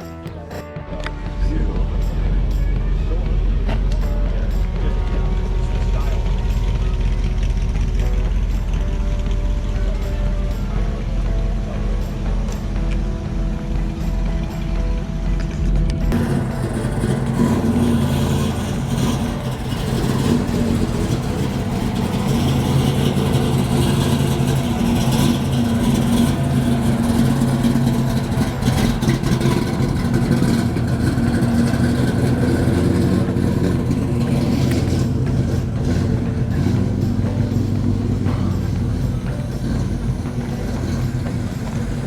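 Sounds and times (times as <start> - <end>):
car engine running: 0.0 - 42.0.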